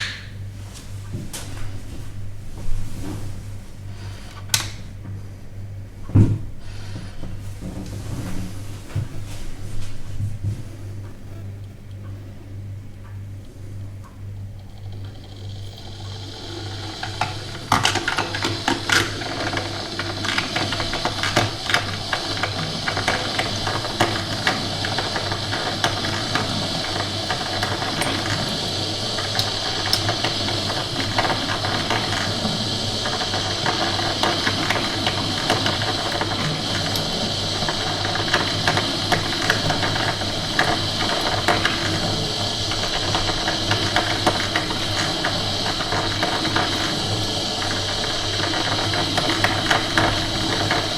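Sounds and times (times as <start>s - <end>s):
coffee machine humming and hissing: 0.0s - 50.9s
coffee machine clicking and rattling: 10.3s - 50.9s.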